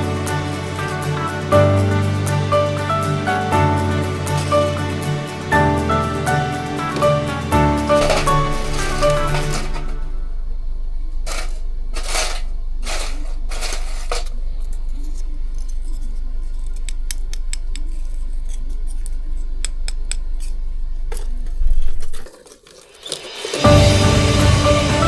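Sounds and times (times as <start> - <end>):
charcoal clinking against metal tin: 0.0 - 1.6, 2.6 - 10.1, 11.3 - 14.4, 22.3 - 23.8.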